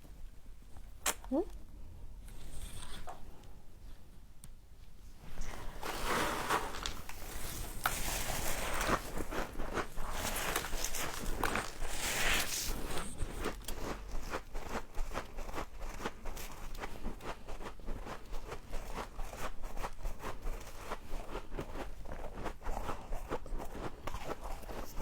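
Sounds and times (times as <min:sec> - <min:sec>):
frost crunching when chewed: 0:06.4 - 0:25.0.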